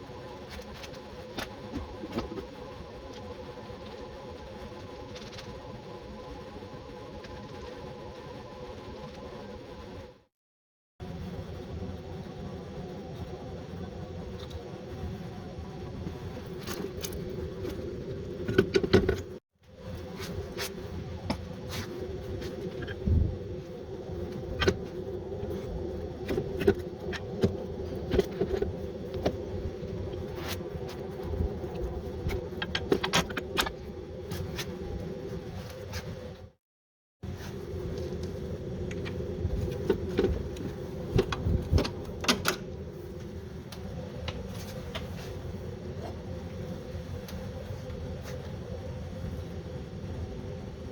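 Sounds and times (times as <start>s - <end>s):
steady hum: 11.0s - 36.6s, 37.2s - 50.9s.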